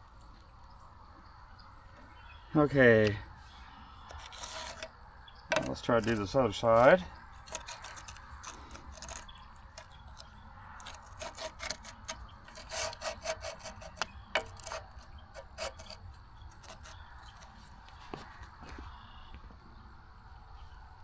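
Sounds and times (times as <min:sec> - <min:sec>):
metal-on-metal scraping: 0:04.0 - 0:18.2.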